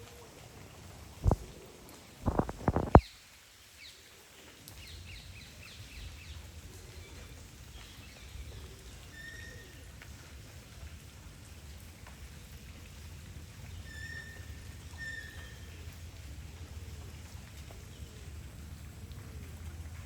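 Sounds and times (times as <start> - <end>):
rain: 0.0 - 20.0
birds chirping: 2.2 - 3.1.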